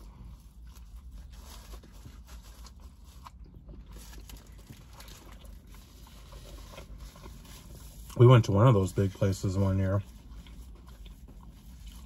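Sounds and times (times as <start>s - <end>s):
biting and chewing food: 0.0s - 8.2s, 10.0s - 12.0s
low steady hum: 0.0s - 12.0s
small crunches and wet clicks: 0.6s - 8.3s.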